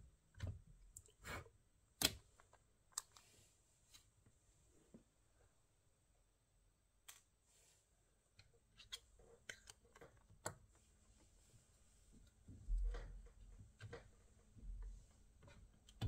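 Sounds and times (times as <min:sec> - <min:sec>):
faint clicks and taps: 0:12.1 - 0:16.0.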